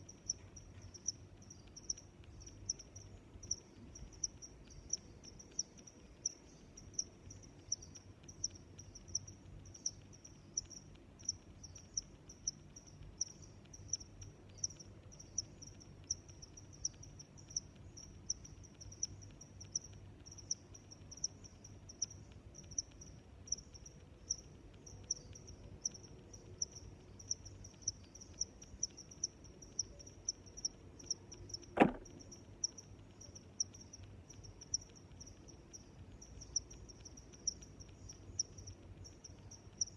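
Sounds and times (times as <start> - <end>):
cricket chirping: 0.0 - 39.9
faint low background hum: 0.0 - 39.9
sharp knock: 31.8 - 32.2.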